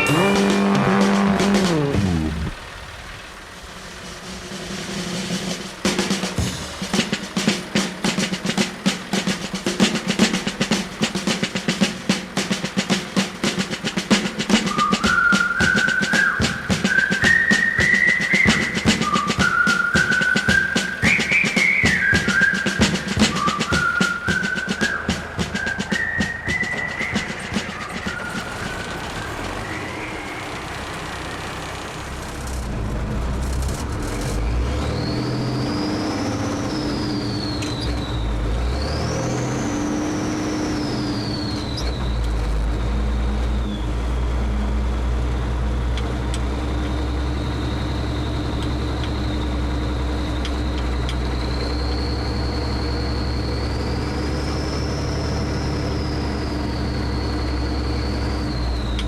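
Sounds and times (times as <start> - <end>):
high whine: 0.0 - 6.8
truck diesel engine under load: 0.0 - 59.0.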